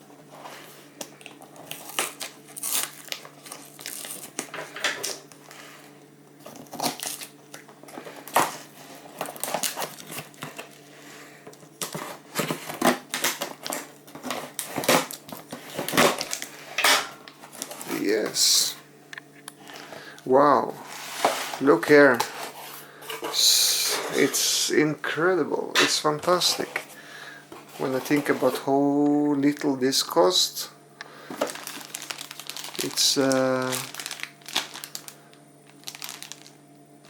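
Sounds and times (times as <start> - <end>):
packaging rustling and crinkling: 0.2 - 18.8, 26.2 - 28.8, 31.3 - 36.6.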